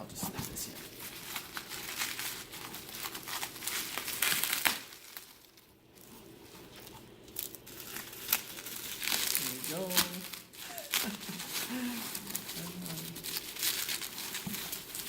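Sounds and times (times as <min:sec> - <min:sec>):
packing wrap crinkling: 0:00.3 - 0:15.0.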